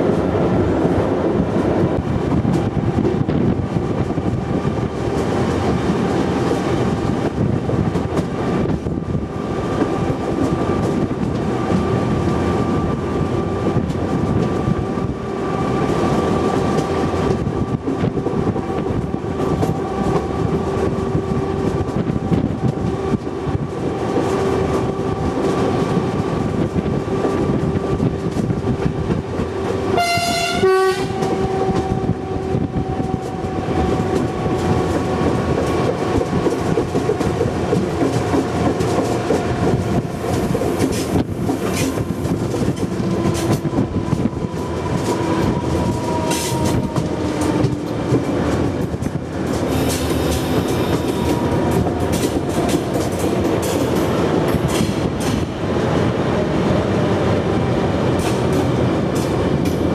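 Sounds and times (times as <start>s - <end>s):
train wheels rolling on rails: 0.0s - 59.9s
train horn blast: 29.9s - 34.6s.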